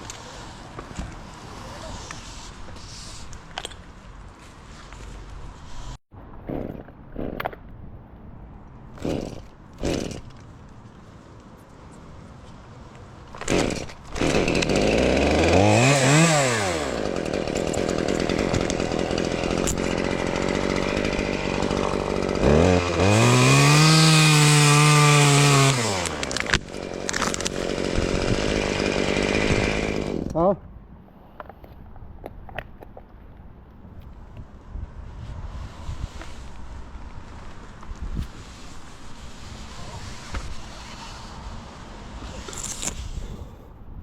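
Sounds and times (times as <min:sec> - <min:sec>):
chainsaw revving: 0:09.0 - 0:10.4, 0:13.4 - 0:30.4.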